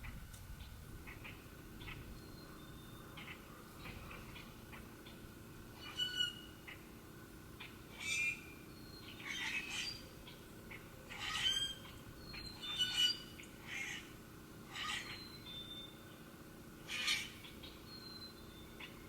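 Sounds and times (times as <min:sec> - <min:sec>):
bird squawking: 0:05.8 - 0:06.9, 0:07.6 - 0:15.4, 0:16.8 - 0:18.2.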